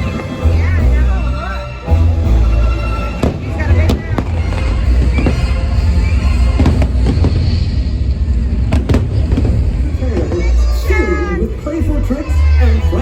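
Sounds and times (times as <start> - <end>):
deep continuous rumble: 0.0 - 13.0
music soundtrack: 0.0 - 13.0
fireworks bangs: 3.1 - 11.3.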